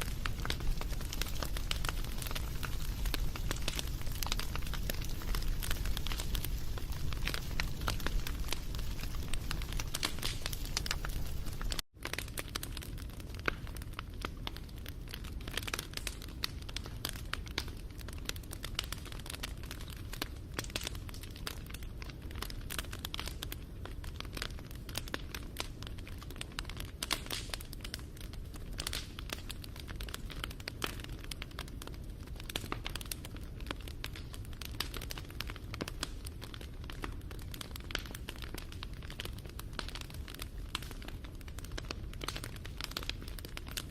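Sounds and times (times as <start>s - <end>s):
campfire crackling: 0.0s - 43.9s.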